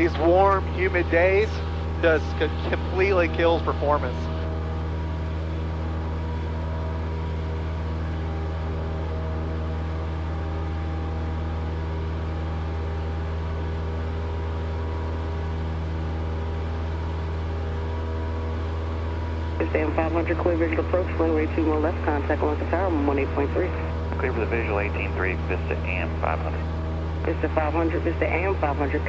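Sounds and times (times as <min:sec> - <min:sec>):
light aircraft engine droning: 0:00.0 - 0:29.0.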